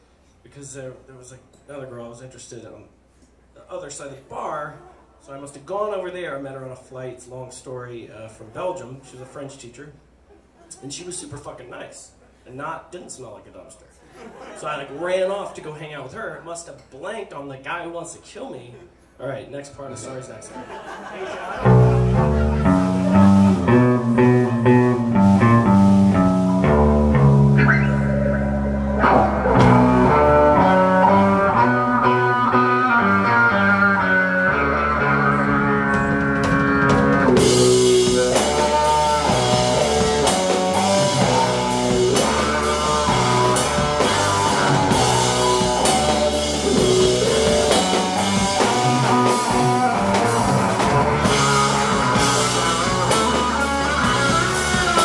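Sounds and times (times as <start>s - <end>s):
rock band playing instrumental: 21.5s - 55.0s.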